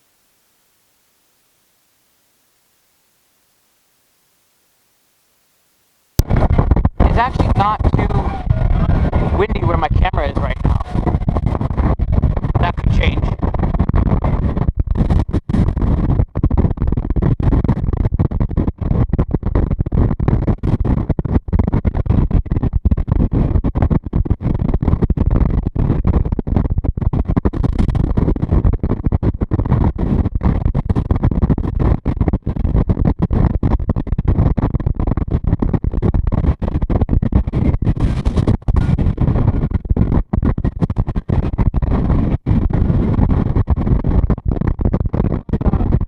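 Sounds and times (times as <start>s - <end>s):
wind buffeting microphone: 6.2s - 17.8s.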